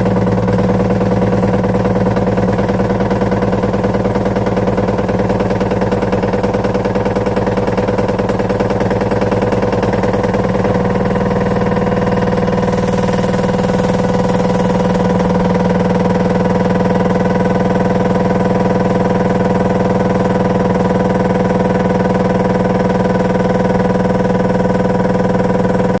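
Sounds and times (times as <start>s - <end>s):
washing machine motor hum: 0.0s - 17.3s
fast even rattle: 12.4s - 16.5s.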